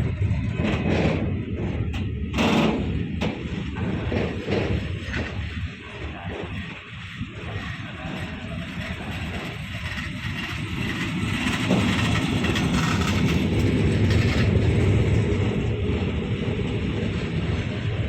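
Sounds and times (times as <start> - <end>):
train passing on tracks: 0.0 - 18.0.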